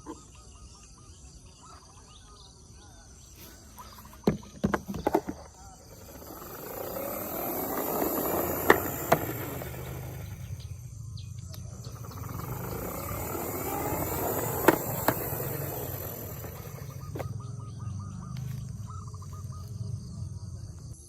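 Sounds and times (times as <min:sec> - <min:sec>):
toy car rolling: 0:03.5 - 0:10.8, 0:11.5 - 0:17.4.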